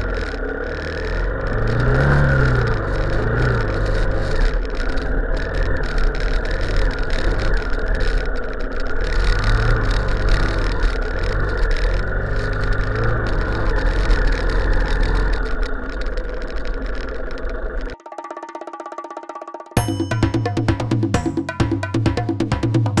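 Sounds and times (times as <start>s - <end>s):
rumbling noise: 0.0s - 18.0s
vehicle engine running: 0.0s - 18.0s.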